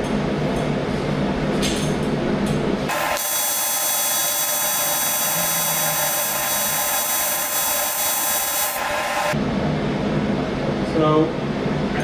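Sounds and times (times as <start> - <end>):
welding arc buzzing: 2.9 - 9.4.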